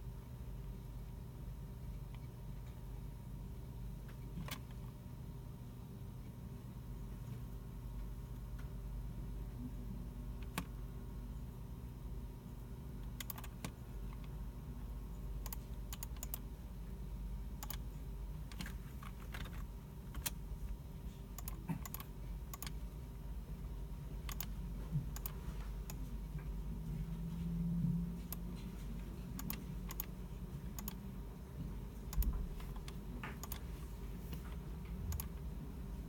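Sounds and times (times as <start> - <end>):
steady low hum: 0.0 - 36.0
computer keyboard keystrokes: 13.1 - 14.3, 15.4 - 16.4, 17.6 - 17.8, 18.4 - 20.4, 21.4 - 22.8, 24.2 - 26.1, 29.3 - 31.0, 32.1 - 33.7, 35.0 - 35.4
mouse clicks: 13.1 - 14.3, 17.6 - 17.8, 21.4 - 22.8, 24.2 - 24.5, 29.4 - 30.1, 30.8 - 31.0, 32.1 - 33.7.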